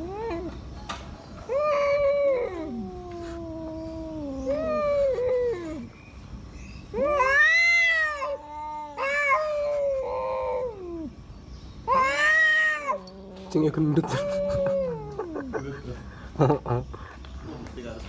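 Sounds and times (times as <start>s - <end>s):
cats yowling: 0.0s - 0.7s, 1.3s - 6.0s, 6.9s - 16.8s.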